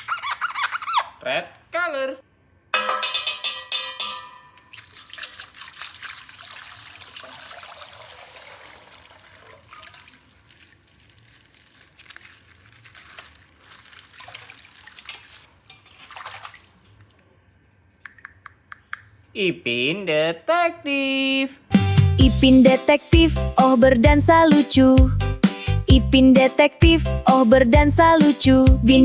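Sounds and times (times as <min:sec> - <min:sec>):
packaging crackling and rustling: 0:10.2 - 0:16.1.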